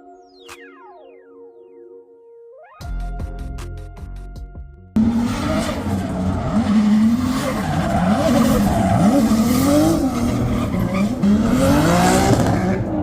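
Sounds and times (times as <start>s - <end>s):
car engine revving: 5.0s - 13.0s
tyres skidding on pavement: 5.0s - 13.0s.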